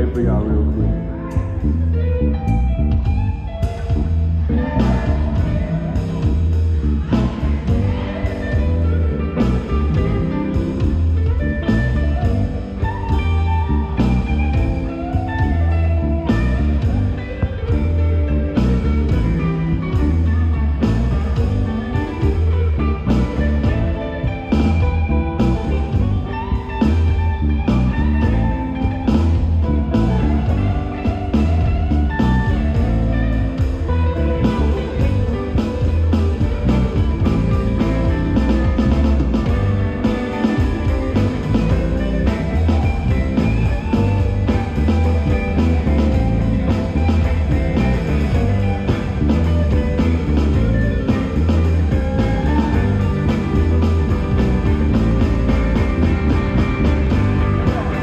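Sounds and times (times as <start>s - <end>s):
bass guitar: 0.0s - 58.0s
lead guitar: 0.0s - 58.0s
live rock band playing: 0.0s - 58.0s
drum kit steady beat: 2.5s - 58.0s.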